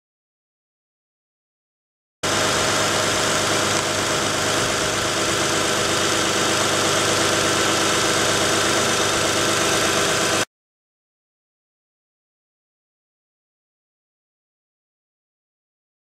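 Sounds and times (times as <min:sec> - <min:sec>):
car engine idling: 0:02.2 - 0:10.4.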